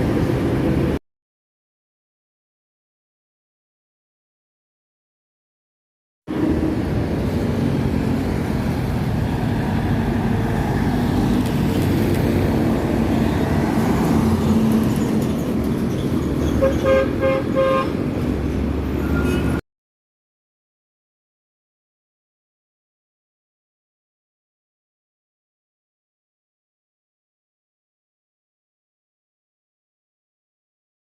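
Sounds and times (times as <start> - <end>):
heavy vehicle engines: 0.0 - 1.0, 6.3 - 19.6
vehicle horn toots: 16.6 - 17.9.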